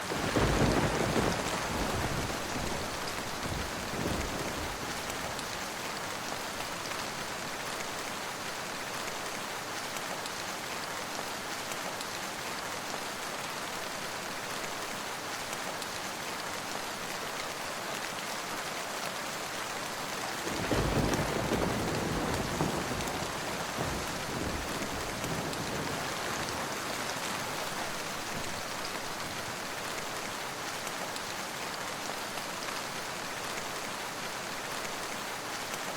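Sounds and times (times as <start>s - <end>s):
steady rain falling: 0.0s - 35.9s.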